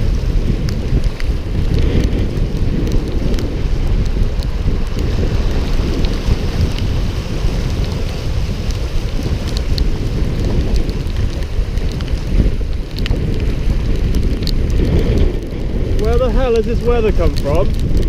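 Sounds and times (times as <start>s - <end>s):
wind buffeting microphone: 0.0s - 18.0s
light ticks: 8.7s - 15.7s.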